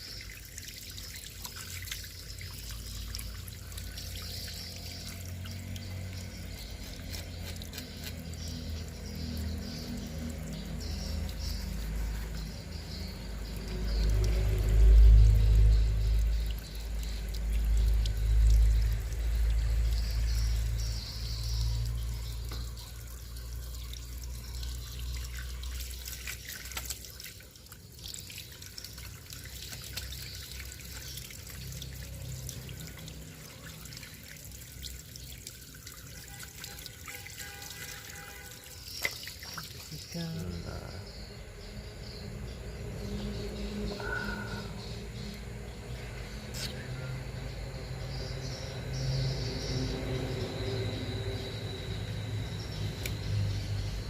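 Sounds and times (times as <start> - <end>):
water trickling: 0.0 - 54.0.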